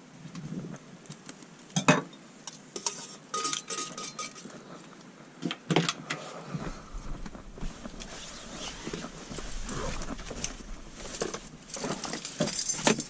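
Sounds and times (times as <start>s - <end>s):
wind rumbling on microphone: 0.1s - 1.0s, 6.4s - 11.8s
metal utensils clanking on grill: 2.8s - 4.5s.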